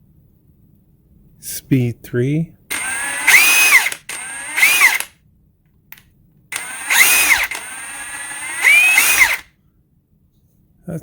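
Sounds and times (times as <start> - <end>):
cordless impact wrench motor whine: 2.7 - 5.1, 6.5 - 9.5.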